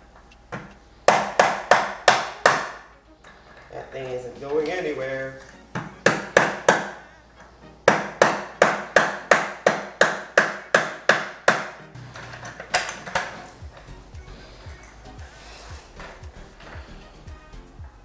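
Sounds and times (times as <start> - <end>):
hammer striking plastic: 0.5 - 2.8, 5.7 - 7.0, 7.8 - 13.5.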